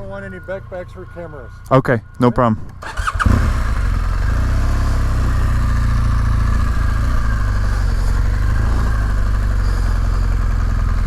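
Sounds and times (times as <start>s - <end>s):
motorcycle engine idling: 2.8s - 11.0s.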